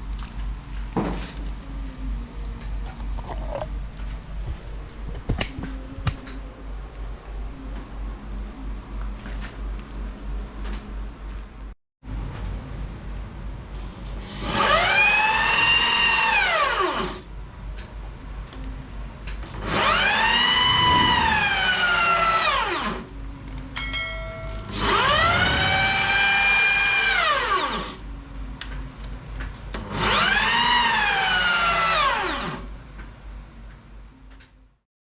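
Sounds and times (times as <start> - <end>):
cnc router motors whining: 14.3 - 17.3, 19.4 - 23.6, 24.7 - 28.1, 29.8 - 32.7.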